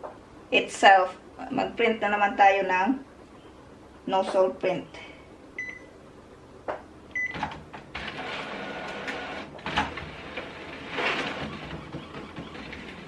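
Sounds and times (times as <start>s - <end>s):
printer feeding and whirring: 7.4s - 13.0s.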